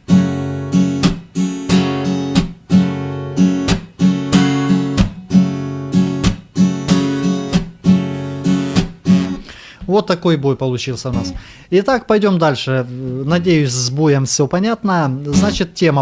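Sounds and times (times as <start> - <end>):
acoustic guitar strumming: 0.0 - 9.6, 11.1 - 11.5, 15.3 - 15.7.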